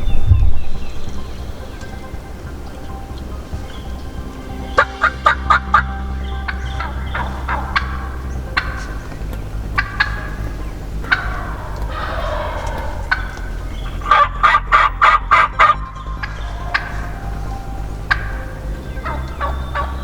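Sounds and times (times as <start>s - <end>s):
wild turkey calling: 4.7s - 20.0s.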